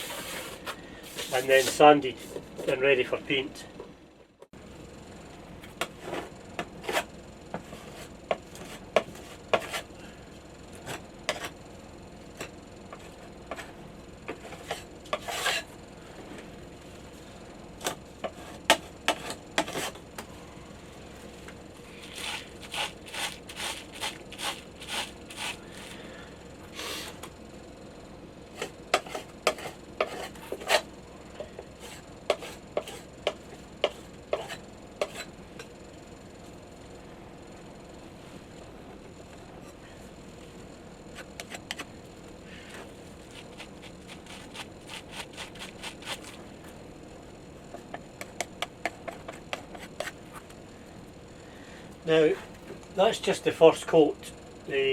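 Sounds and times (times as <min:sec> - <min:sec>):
putty knife scraping wood: 0:14.5 - 0:15.7, 0:18.2 - 0:20.0, 0:22.0 - 0:26.0, 0:28.6 - 0:30.9, 0:31.8 - 0:35.3, 0:43.2 - 0:46.4.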